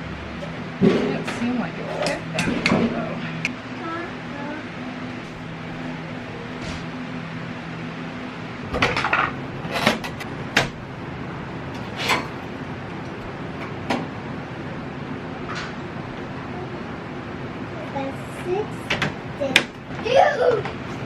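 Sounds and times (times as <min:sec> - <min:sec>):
steady low hum: 0:00.0 - 0:21.0
objects knocking and clattering: 0:08.7 - 0:10.8.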